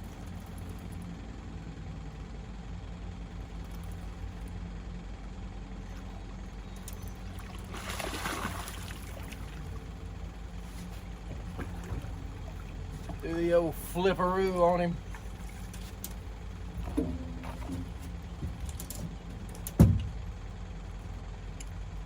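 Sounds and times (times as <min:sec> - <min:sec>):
low hum: 0:00.0 - 0:22.0
water around a boat: 0:00.0 - 0:22.0
fish splashing in water: 0:06.9 - 0:10.5.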